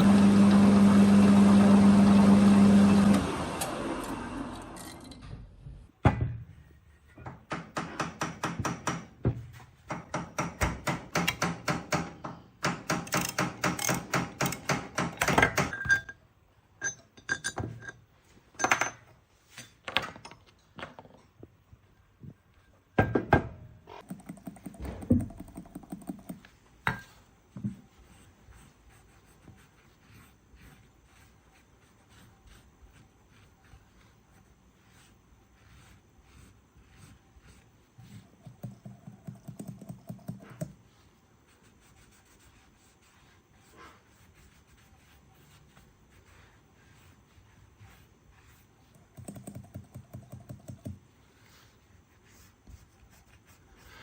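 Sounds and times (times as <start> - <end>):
tools and metal knocking: 7.2 - 9.1, 9.9 - 16.2, 16.8 - 18.0.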